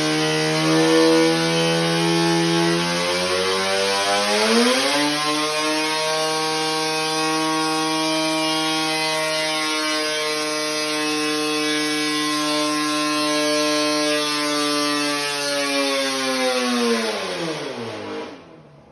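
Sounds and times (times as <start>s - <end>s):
two-stroke race engine revving: 0.0s - 14.4s.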